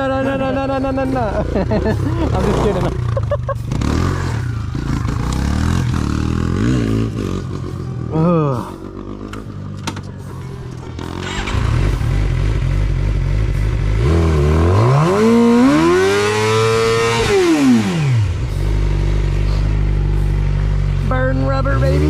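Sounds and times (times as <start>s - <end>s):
motorcycle engine idling and revving: 0.0s - 22.0s.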